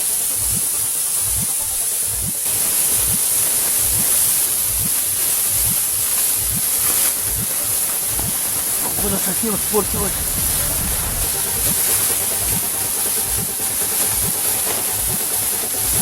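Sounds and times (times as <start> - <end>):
wind blowing across microphone: 8.1 - 12.8
low thumps: 8.1 - 13.5.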